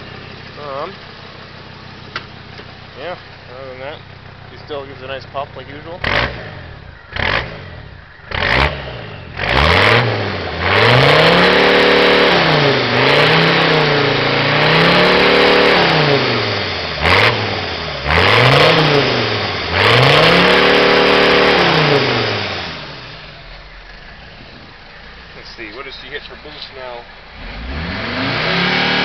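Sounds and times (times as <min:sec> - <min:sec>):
diesel engine revving: 0:00.0 - 0:29.0.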